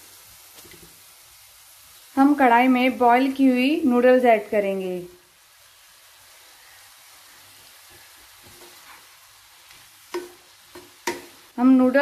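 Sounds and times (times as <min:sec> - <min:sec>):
wooden spatula turning food: 0:00.0 - 0:02.2, 0:05.4 - 0:11.9
vegetables sizzling in oil: 0:00.0 - 0:12.0.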